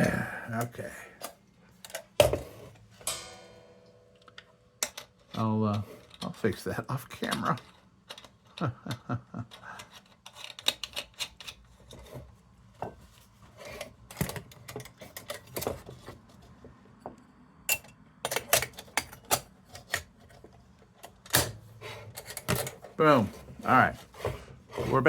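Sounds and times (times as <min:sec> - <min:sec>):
metal parts clicking and tapping: 0:04.1 - 0:06.4, 0:07.1 - 0:08.6, 0:09.5 - 0:12.0, 0:17.7 - 0:20.1, 0:21.0 - 0:23.0.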